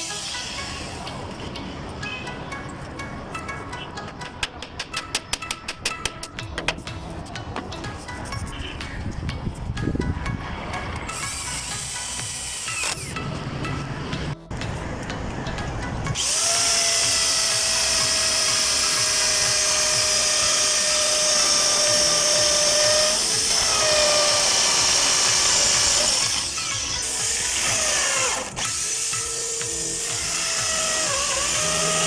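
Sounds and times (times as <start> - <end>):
electric drill whining: 0.0 - 1.0, 11.1 - 13.2, 16.1 - 32.0.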